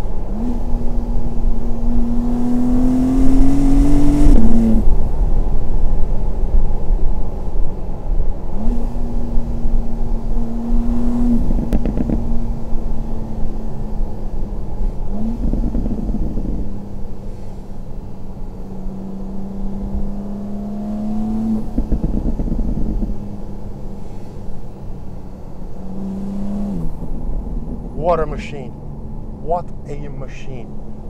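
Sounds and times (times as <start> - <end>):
car engine accelerating: 0.0 - 31.0
exhaust crackles: 8.5 - 31.0.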